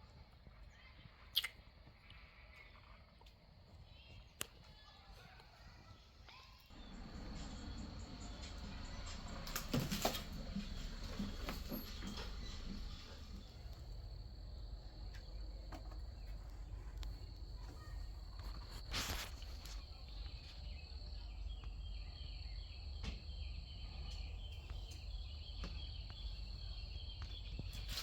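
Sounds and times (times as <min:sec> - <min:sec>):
low hum: 0:06.7 - 0:19.2.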